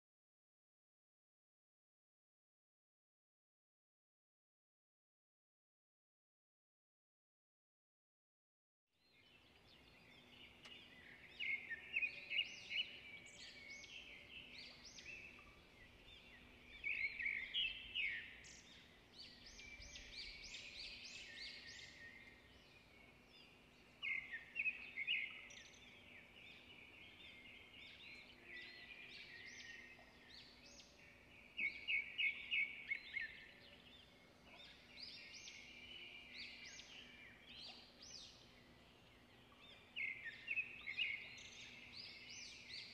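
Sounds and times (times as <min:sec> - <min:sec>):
small birds chirping: 0:09.0 - 0:42.9.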